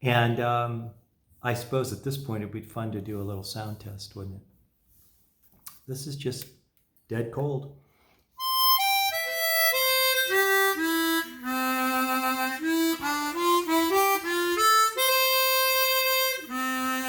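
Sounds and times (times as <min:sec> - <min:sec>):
harmonica playing slow melody: 0:08.4 - 0:17.0.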